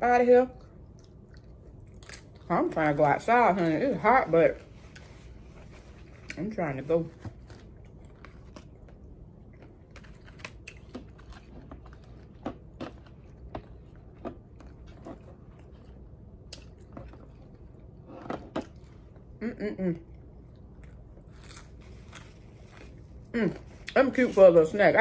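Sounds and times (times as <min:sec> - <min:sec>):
low steady background hum: 0:00.0 - 0:25.0
person chewing dumplings: 0:00.6 - 0:02.5, 0:07.4 - 0:18.0, 0:20.0 - 0:24.0.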